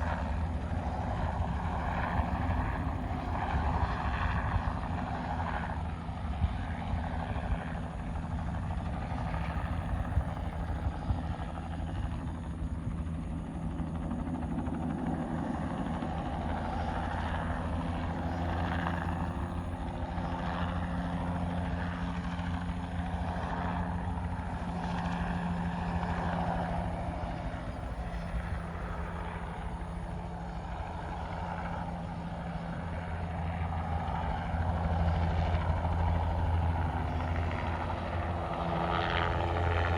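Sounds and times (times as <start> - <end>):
helicopter rotor chop and engine: 0.0 - 39.9.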